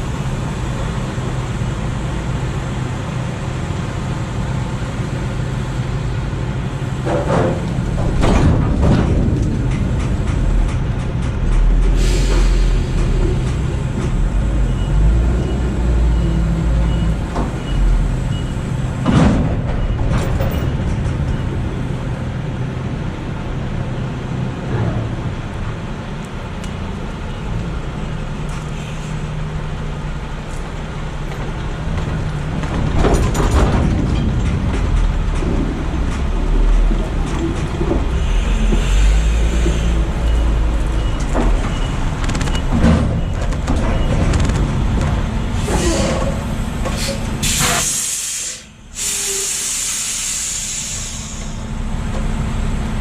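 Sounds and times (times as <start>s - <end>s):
road noise: 0.0s - 53.0s
truck engine rumble: 0.0s - 53.0s
short sharp hiss: 47.0s - 51.6s.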